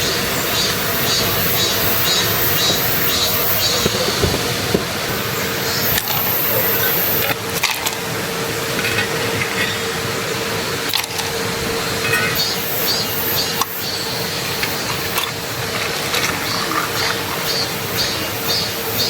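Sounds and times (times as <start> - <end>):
stream water rushing: 0.0 - 19.0
light knocks: 2.5 - 5.1.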